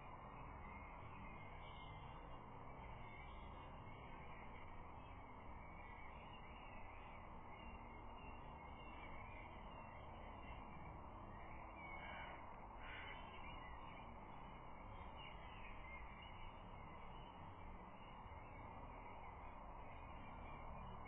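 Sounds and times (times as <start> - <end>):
distant bird calls: 0.0 - 21.0
faint outdoor background noise: 0.0 - 21.0.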